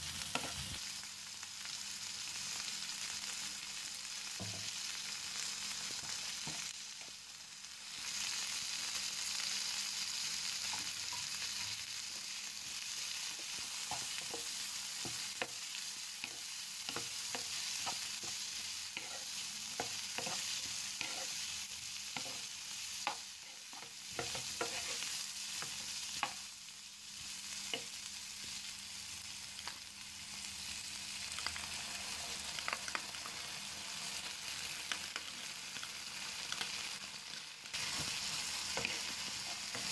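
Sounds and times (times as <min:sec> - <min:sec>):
vegetables sizzling in frying pan: 0:00.0 - 0:39.9
wooden spoon scraping pan: 0:20.2 - 0:21.4, 0:23.5 - 0:25.0.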